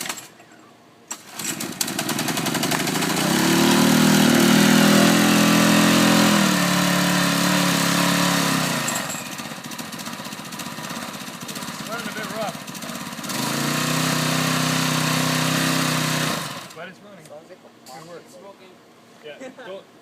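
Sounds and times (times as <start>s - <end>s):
small engine running rough: 1.1s - 16.8s.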